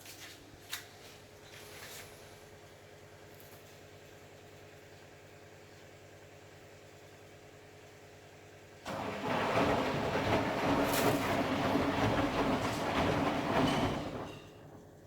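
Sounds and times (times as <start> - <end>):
washing machine drum tumbling: 8.8 - 15.0.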